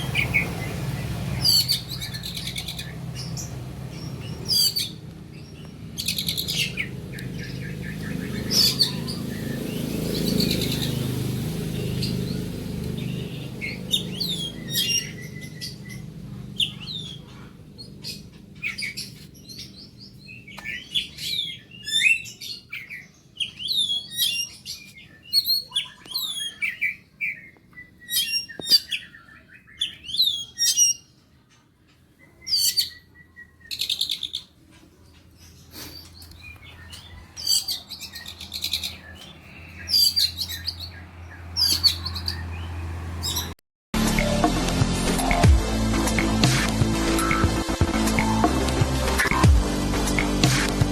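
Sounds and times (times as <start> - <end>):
songbird chirping and whistling: 0.0 - 31.2, 32.2 - 34.5.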